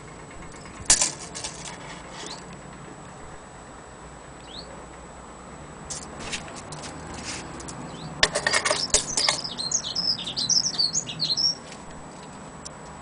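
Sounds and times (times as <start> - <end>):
knocks and rattles: 0.0 - 3.0, 5.9 - 9.6
rapid high bird chirps: 4.4 - 4.8, 7.8 - 11.7.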